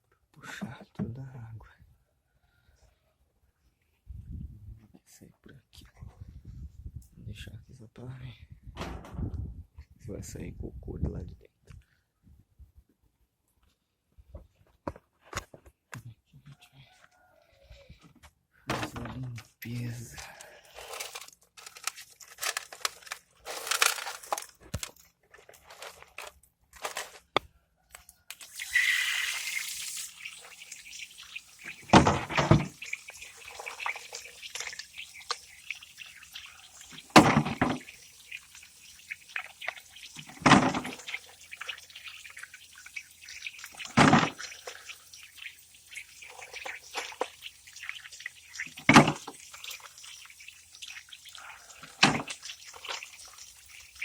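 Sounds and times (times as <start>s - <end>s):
water splashing and dripping: 28.3s - 54.0s.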